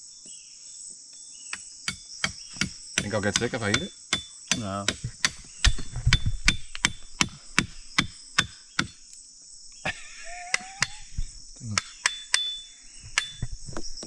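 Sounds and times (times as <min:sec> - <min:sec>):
high insect chorus: 0:00.0 - 0:14.0.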